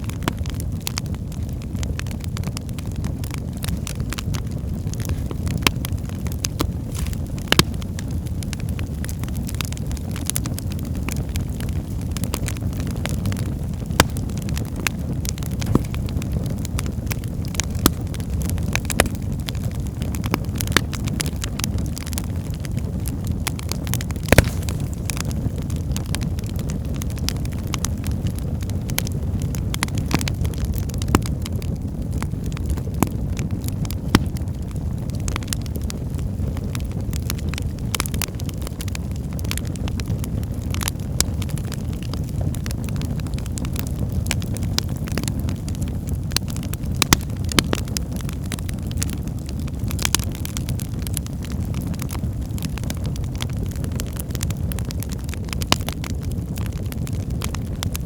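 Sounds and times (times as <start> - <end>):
low rumble of flames: 0.0 - 58.0
wood fire crackling and popping: 0.0 - 58.0.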